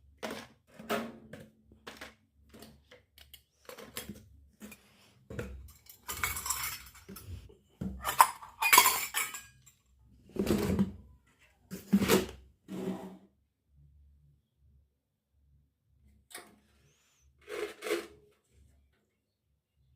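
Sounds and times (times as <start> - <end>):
toy cookware clinking: 5.8 - 7.1, 8.0 - 9.7.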